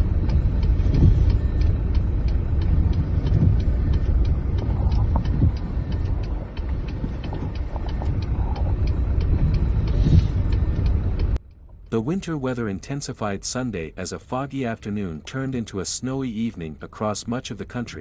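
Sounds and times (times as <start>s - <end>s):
wind gusting on microphone: 0.0s - 11.4s.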